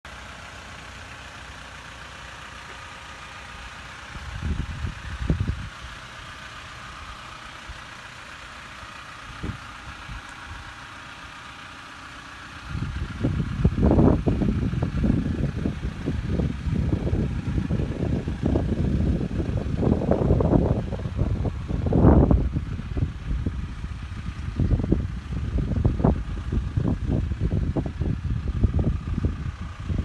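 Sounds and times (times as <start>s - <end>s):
diesel engine idling: 0.0s - 30.0s
bursts of low rumble: 12.6s - 30.0s.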